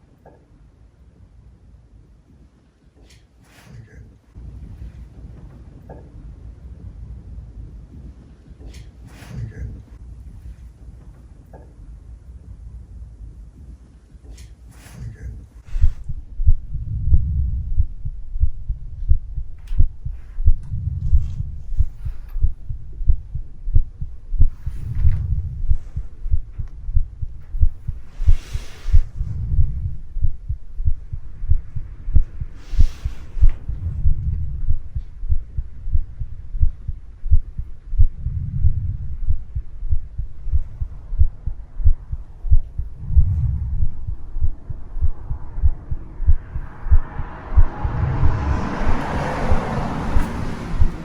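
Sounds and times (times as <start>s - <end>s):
storm wind buffeting microphone: 15.0s - 51.0s.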